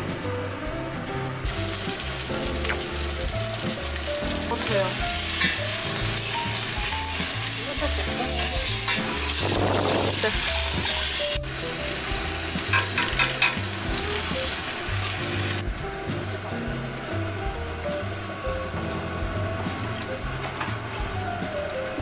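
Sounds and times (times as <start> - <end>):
beef sizzling in pot: 1.4 - 15.6
water pouring into pot: 1.5 - 7.8.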